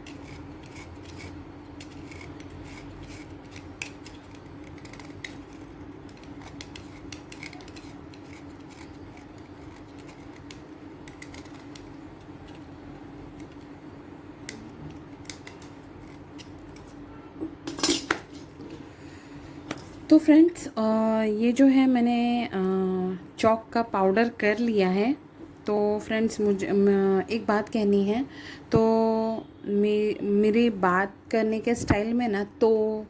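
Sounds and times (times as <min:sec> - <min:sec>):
chalk being scraped: 0:00.0 - 0:10.6.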